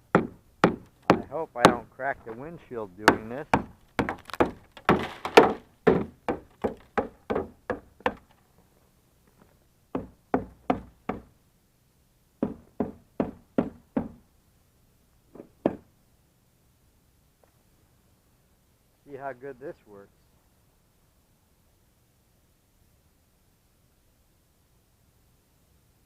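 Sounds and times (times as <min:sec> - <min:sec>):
knocking on icy truck body: 0:00.2 - 0:01.8, 0:03.1 - 0:08.2.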